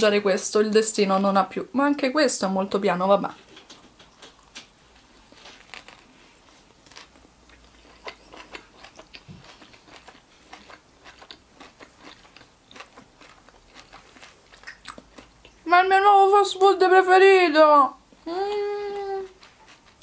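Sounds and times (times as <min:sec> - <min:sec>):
person chewing sandwich: 0:03.6 - 0:15.6, 0:18.5 - 0:20.0
wet mouth clicks: 0:14.6 - 0:15.5.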